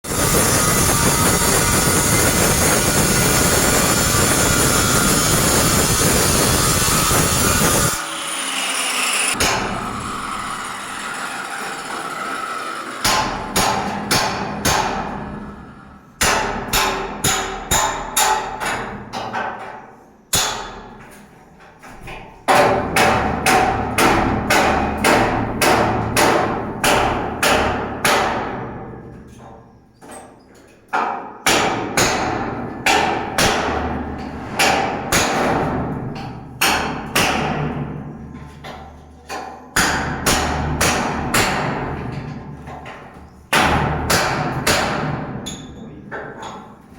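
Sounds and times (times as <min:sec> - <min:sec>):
hammer ringing on metal: 0:16.2 - 0:18.9.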